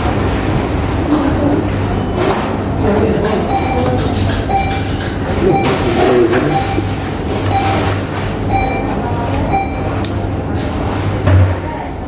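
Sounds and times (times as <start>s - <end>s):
steady low hum: 0.0s - 10.5s
background din: 3.5s - 7.9s
electronic beep: 3.5s - 7.9s, 8.5s - 8.9s, 9.5s - 9.9s.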